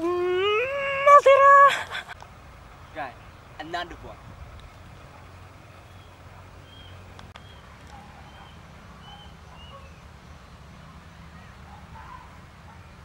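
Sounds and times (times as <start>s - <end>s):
bird chirping: 5.0s - 13.0s.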